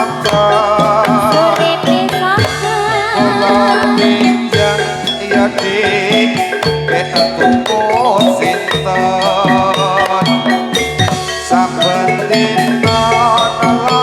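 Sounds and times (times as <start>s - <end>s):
drum strokes: 0.0s - 14.0s
metallophones striking notes: 0.0s - 14.0s
woman singing: 0.0s - 14.0s.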